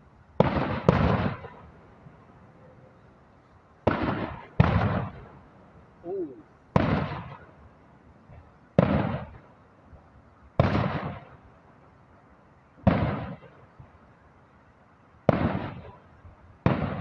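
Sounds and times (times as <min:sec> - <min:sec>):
distant fireworks booms: 0:00.0 - 0:02.3, 0:03.8 - 0:05.5, 0:06.3 - 0:14.3, 0:15.2 - 0:17.0.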